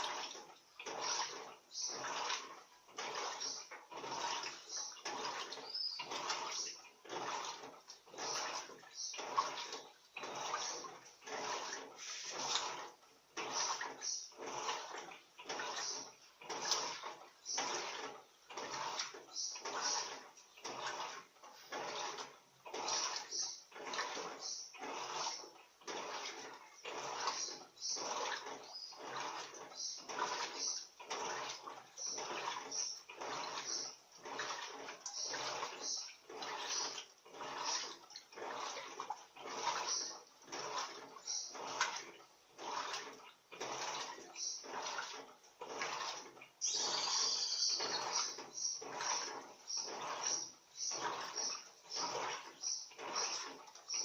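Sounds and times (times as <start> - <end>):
washing machine water swishing: 0.0 - 54.0.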